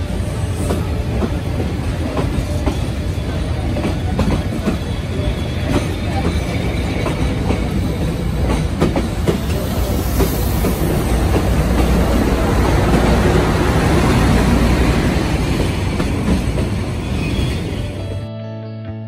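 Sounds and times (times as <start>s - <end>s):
train coaches rumbling past: 0.0s - 18.3s.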